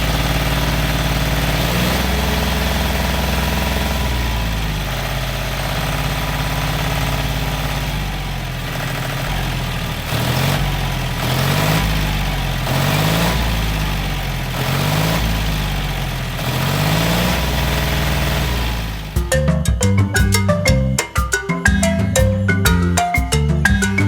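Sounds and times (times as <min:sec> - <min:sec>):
small tractor engine idling: 0:00.0 - 0:14.6, 0:15.3 - 0:16.4, 0:17.0 - 0:19.2
tractor engine revving: 0:00.0 - 0:19.2.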